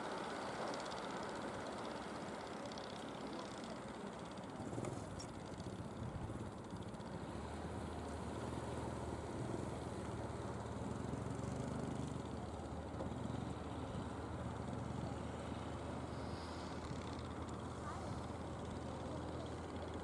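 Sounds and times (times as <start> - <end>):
boat engine humming: 10.6 - 20.0.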